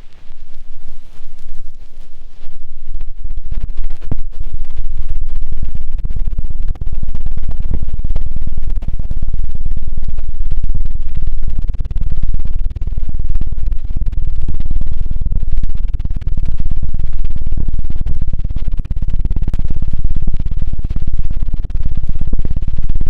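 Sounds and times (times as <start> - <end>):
fluttering thumps on microphone: 0.0 - 6.4.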